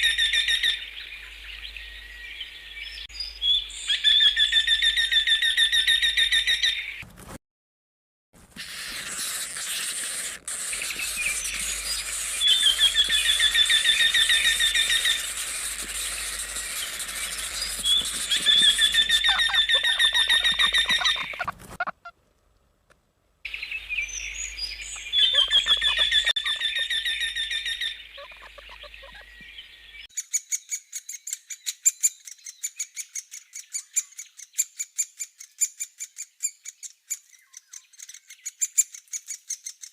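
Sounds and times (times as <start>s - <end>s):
woodpecker rapid sharp notes: 8.5s - 22.1s
bird singing plaintive notes: 10.7s - 21.5s, 23.5s - 30.8s.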